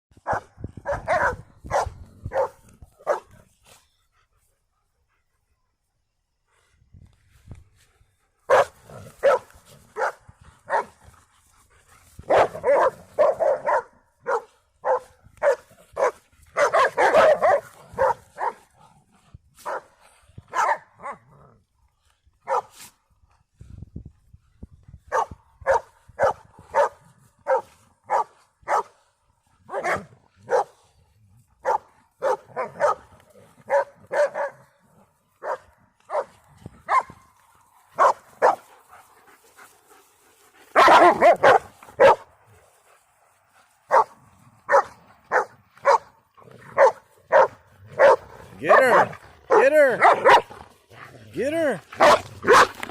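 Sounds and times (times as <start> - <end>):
dogs barking: 0.2 - 3.4, 8.5 - 11.0, 12.2 - 18.7, 19.6 - 21.2, 22.4 - 22.7, 25.1 - 29.0, 29.6 - 30.8, 31.6 - 34.8, 35.4 - 37.2, 37.9 - 38.7, 40.7 - 42.3, 43.8 - 50.6, 52.0 - 52.9.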